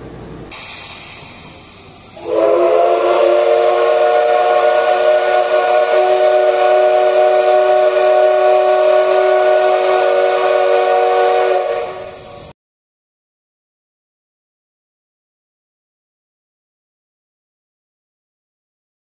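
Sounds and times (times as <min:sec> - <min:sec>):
hissing steam: 0:00.0 - 0:12.6
steam whistle blast: 0:02.1 - 0:12.6.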